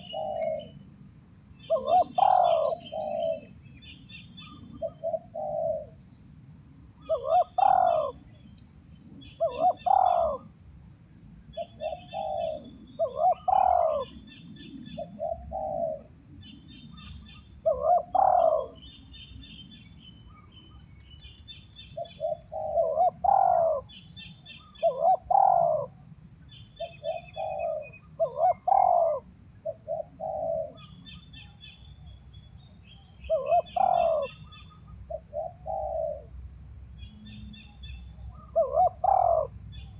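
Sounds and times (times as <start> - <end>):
doves cooing: 0.0 - 0.8, 1.7 - 3.5, 4.4 - 6.0, 7.0 - 8.3, 9.4 - 10.5, 11.6 - 16.1, 17.6 - 18.8, 22.0 - 24.0, 24.6 - 26.0, 26.8 - 30.9, 33.3 - 36.3, 38.3 - 39.6
high insect drone: 0.0 - 39.9.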